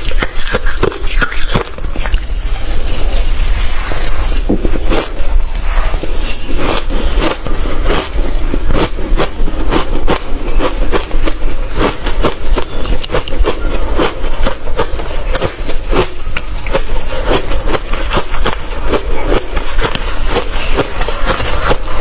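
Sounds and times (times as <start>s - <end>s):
chewing crushed ice: 4.0s - 5.6s, 6.3s - 22.0s.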